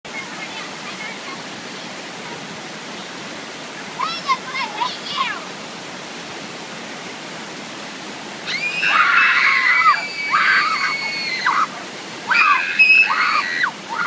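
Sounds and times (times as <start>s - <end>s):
waterfall and creek rushing: 0.1s - 14.0s
girl screaming: 8.4s - 11.7s, 12.3s - 14.0s.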